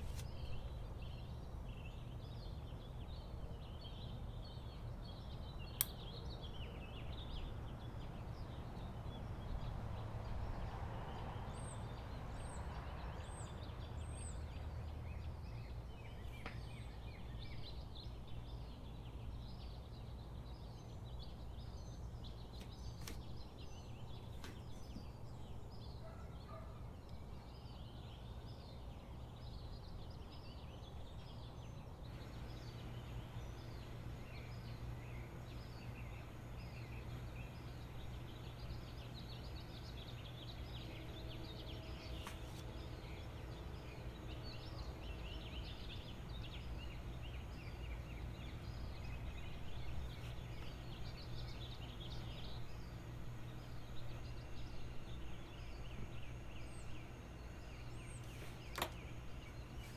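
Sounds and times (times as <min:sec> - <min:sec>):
birds chattering: 0:15.2 - 0:59.9
low hum: 0:31.0 - 0:59.9.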